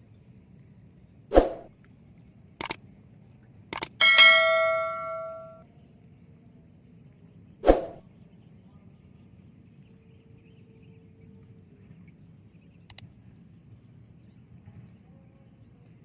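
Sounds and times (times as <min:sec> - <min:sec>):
small metal bell ringing: 0:04.0 - 0:05.6.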